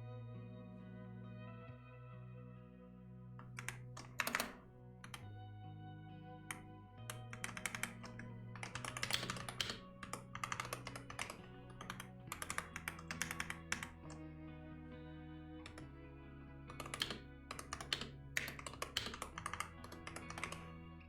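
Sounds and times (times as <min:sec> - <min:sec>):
soft music of held chords: 0:00.0 - 0:21.0
typing on computer keyboard: 0:03.4 - 0:05.3, 0:07.1 - 0:14.2, 0:15.7 - 0:15.9, 0:16.7 - 0:20.7.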